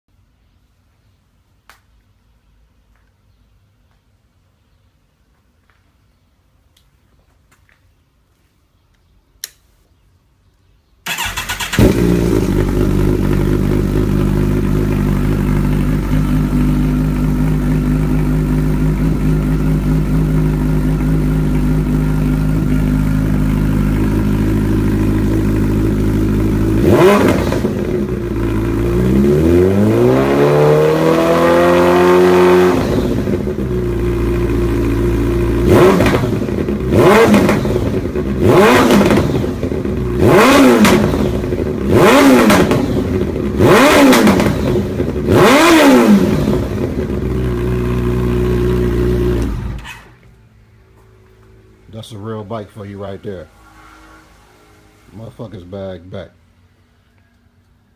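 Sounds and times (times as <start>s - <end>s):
motorcycle engine revving: 11.1s - 56.8s.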